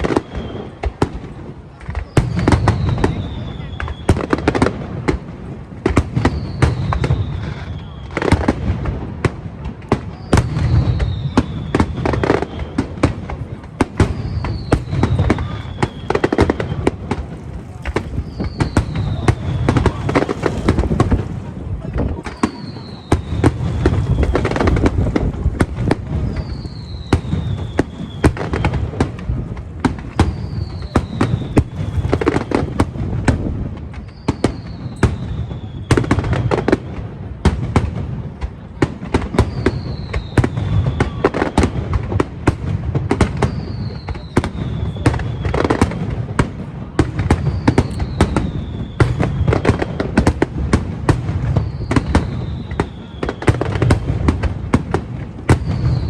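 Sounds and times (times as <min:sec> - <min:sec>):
fireworks bangs and crackles: 0:00.0 - 0:56.0
falling whistle: 0:47.7 - 0:49.6, 0:51.6 - 0:53.5.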